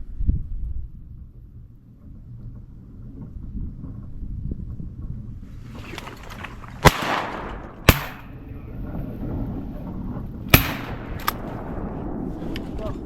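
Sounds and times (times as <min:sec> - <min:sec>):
shotgun shots: 0:06.8 - 0:08.7, 0:10.5 - 0:12.6.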